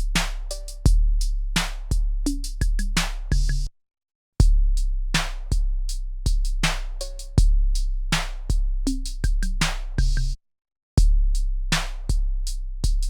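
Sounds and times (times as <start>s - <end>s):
drum machine beat: 0.0s - 3.7s, 6.3s - 10.4s.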